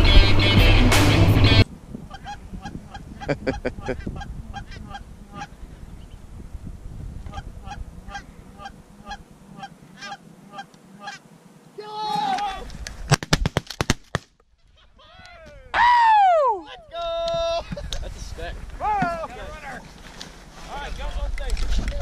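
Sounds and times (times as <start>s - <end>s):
geese honking: 1.5s - 5.6s, 7.3s - 11.3s.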